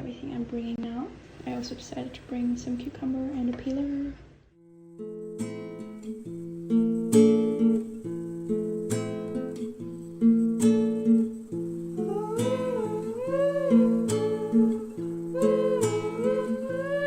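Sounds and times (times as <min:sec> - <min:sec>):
acoustic guitar strumming: 0:04.6 - 0:17.0
person humming a melody: 0:12.0 - 0:17.0.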